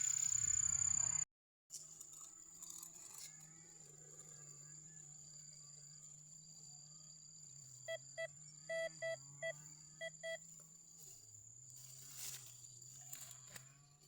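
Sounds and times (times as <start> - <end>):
metal detector beeping: 7.9 - 10.4.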